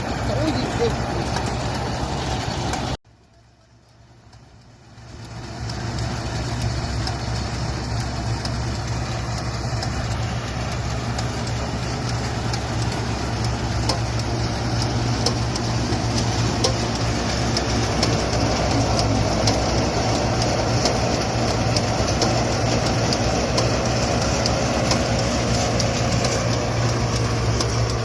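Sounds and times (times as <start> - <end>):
tractor engine running: 0.0 - 28.0
faint clicks: 8.0 - 28.0.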